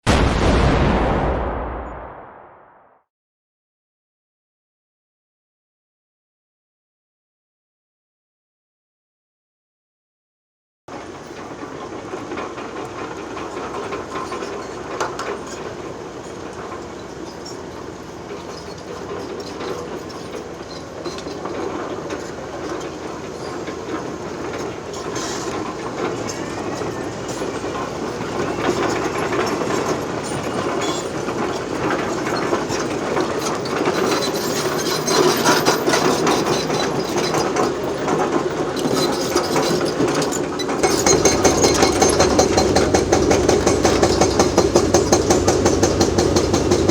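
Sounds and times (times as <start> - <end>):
deep rumble: 0.1 - 2.9
excavator diesel engine: 11.0 - 46.9.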